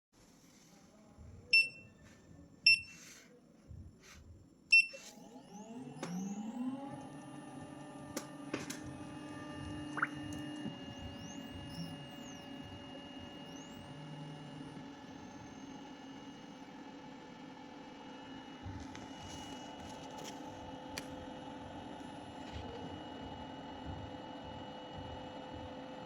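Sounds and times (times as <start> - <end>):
short electronic beeps: 2.7 - 3.0, 4.7 - 5.0
motor whine and hum: 5.0 - 26.0.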